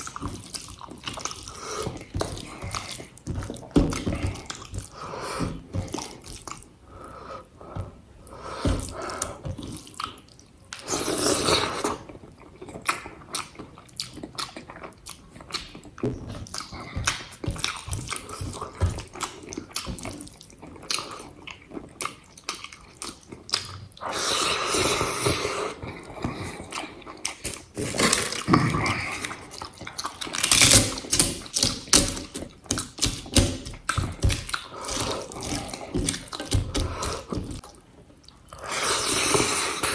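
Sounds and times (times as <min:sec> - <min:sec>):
wet chewing: 0:00.0 - 0:39.9.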